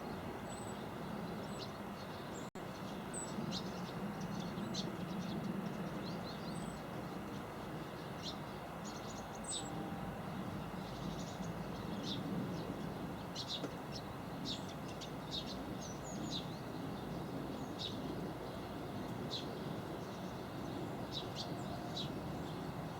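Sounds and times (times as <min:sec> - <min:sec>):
small birds chirping: 0:10.6 - 0:22.9.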